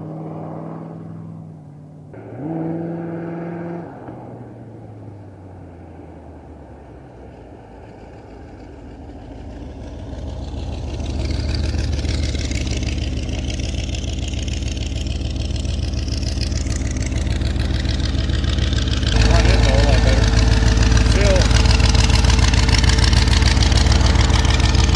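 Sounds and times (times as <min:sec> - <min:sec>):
trike engine low rumble: 0:00.0 - 0:24.9.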